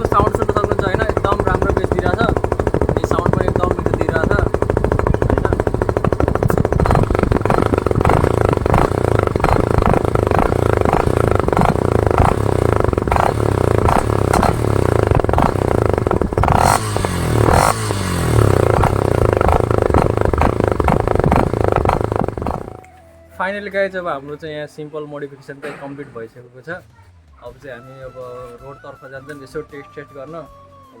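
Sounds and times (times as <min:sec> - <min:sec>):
motorcycle engine running: 0:00.0 - 0:22.8.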